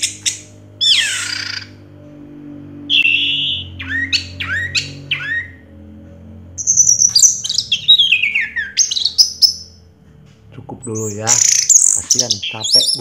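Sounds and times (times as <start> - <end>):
thrush singing: 0.0 - 9.8.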